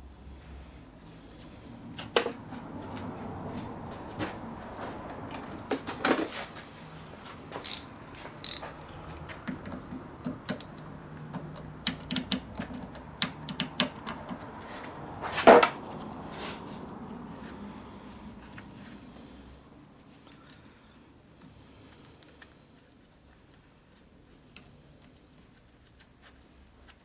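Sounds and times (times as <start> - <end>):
small metal parts clinking: 7.6 - 8.7.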